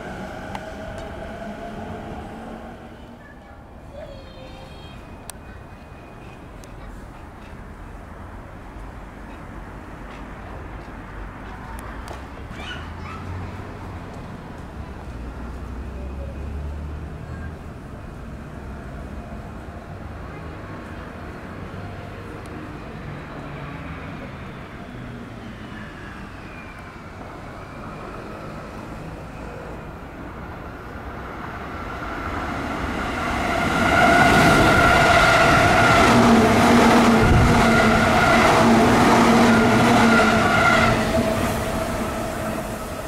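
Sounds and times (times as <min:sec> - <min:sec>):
electric train whining: 0:00.0 - 0:03.2, 0:31.2 - 0:43.0.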